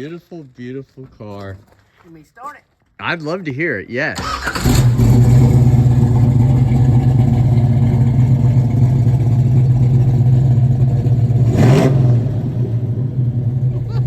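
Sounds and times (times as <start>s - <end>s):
car engine idling: 4.2s - 14.0s.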